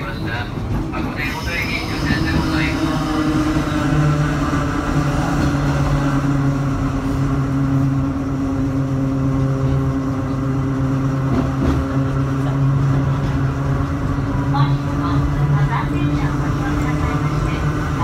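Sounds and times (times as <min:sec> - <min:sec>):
electric train low hum: 0:00.0 - 0:18.0
wheels rumbling on rail: 0:00.0 - 0:18.0.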